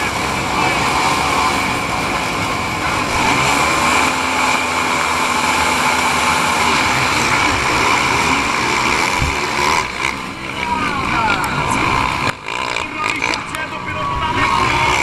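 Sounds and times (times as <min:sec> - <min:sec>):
motocross bikes racing: 0:00.0 - 0:15.0.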